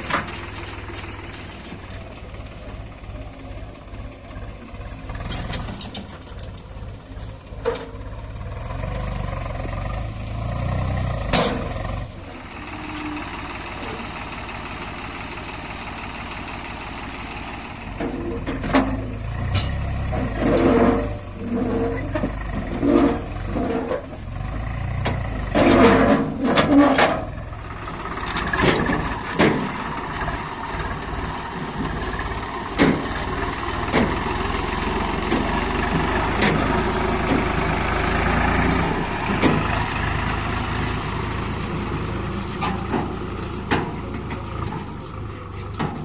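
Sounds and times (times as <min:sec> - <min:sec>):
heavy diesel machinery running: 0:00.0 - 0:46.0.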